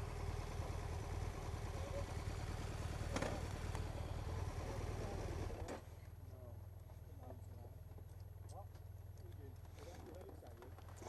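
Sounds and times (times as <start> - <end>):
motorcycle engine running: 0.0 - 5.7.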